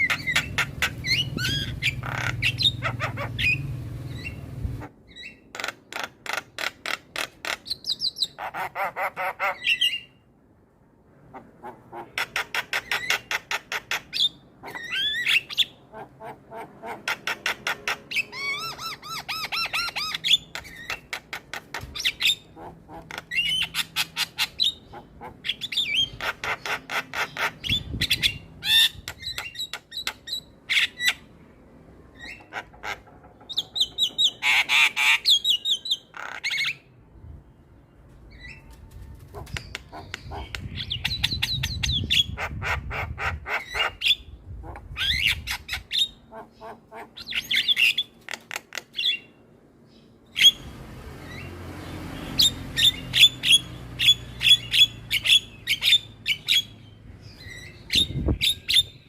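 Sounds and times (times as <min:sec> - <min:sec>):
starlings calling: 0:00.0 - 0:10.2, 0:49.0 - 0:59.0.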